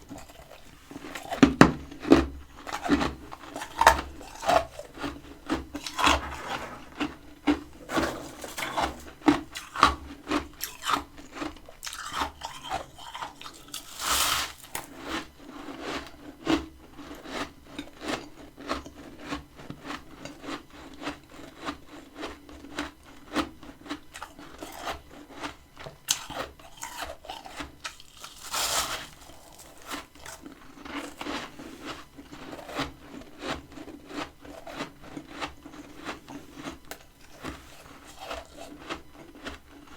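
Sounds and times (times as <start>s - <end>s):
chewing crunchy frost: 0.0s - 39.9s
swishing scrape: 5.8s - 9.1s.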